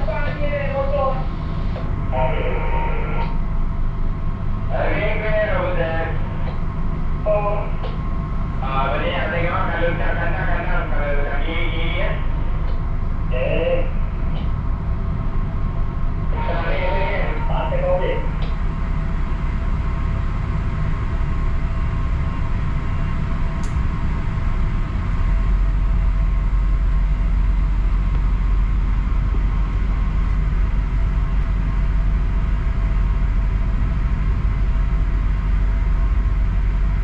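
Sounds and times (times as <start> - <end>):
ship's engines droning: 0.0 - 37.0
faint tick: 23.6 - 23.8.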